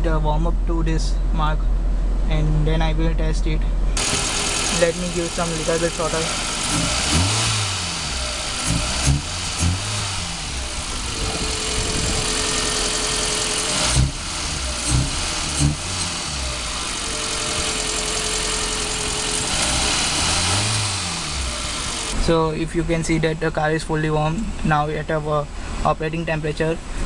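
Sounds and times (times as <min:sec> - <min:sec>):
car engine revving: 0:04.0 - 0:22.5.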